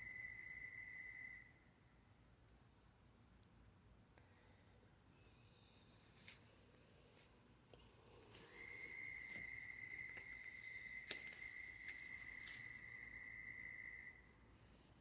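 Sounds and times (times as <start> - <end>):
high-pitched steady tone: 0.0 - 1.8.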